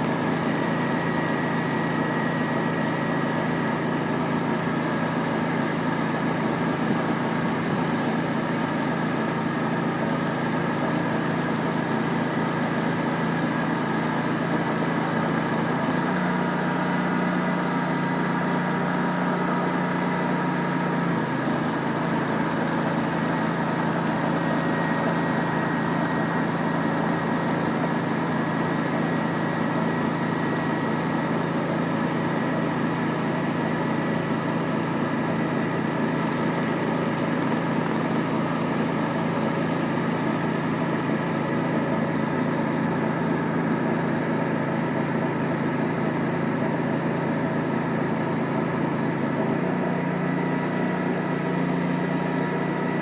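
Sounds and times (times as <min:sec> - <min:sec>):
pressure washer machine drone: 0:00.0 - 0:53.0.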